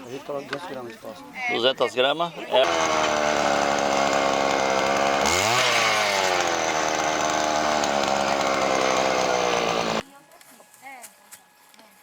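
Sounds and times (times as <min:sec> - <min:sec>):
two-stroke power tool engine revving: 0:02.6 - 0:10.0.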